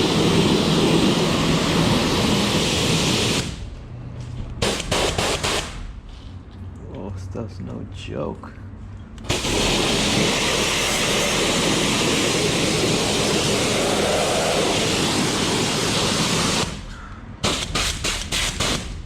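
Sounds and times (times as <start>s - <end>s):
pressure washer spray hissing: 0.0s - 3.7s, 4.6s - 5.9s, 9.3s - 19.0s.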